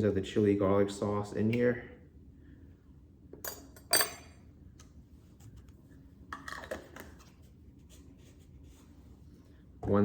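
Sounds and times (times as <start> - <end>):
teaspoon clinking against jar: 3.5 - 4.3.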